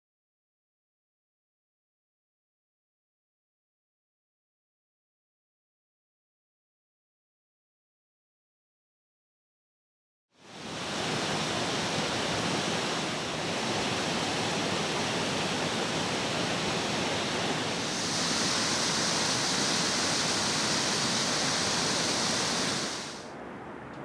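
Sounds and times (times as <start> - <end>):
high hiss: 10.4 - 23.3
running water rushing: 10.5 - 23.3.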